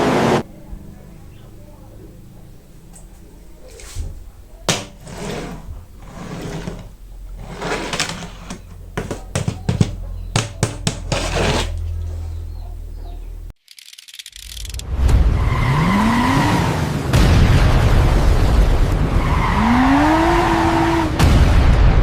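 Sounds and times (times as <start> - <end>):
plastic and card rustling: 4.7 - 12.3.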